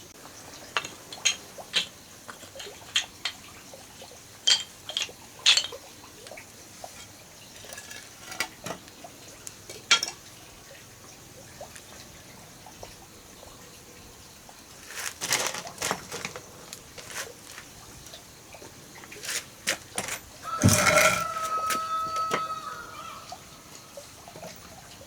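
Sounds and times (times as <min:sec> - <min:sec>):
water splashing and pouring: 0:14.6 - 0:22.6.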